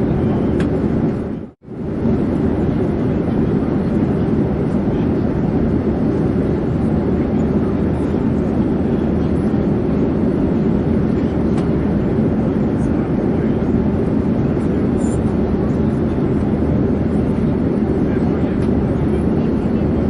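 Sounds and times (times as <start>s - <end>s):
airplane drone in flight: 0.0s - 20.0s.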